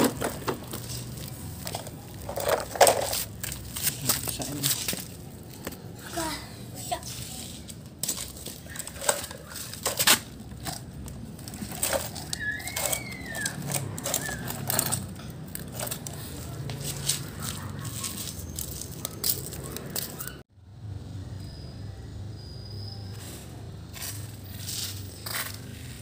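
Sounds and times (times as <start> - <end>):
plastic toy parts clicking: 11.4 - 16.2.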